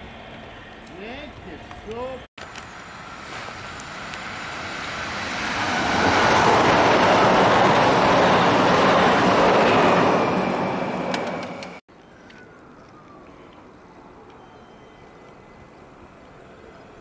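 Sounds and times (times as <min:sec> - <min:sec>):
train passing at speed: 0:02.5 - 0:11.8.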